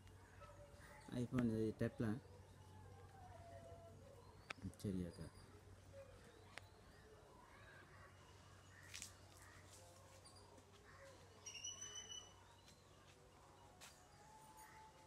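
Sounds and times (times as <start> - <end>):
faint bird calls: 2.2 - 12.8.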